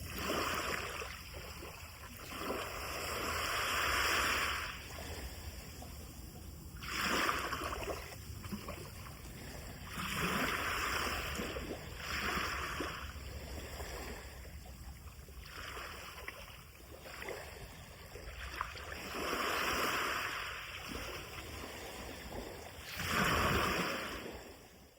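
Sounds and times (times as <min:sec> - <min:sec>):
surf breaking on shore: 0:22.5 - 0:24.5.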